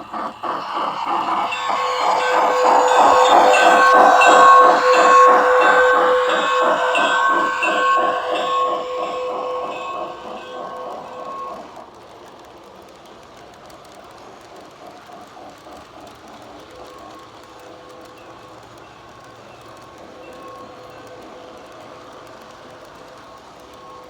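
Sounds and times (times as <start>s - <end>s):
steam locomotive whistle: 0.0s - 11.9s
rhythmic steam chuffing: 0.0s - 24.0s
wheels clicking over track: 0.0s - 24.0s.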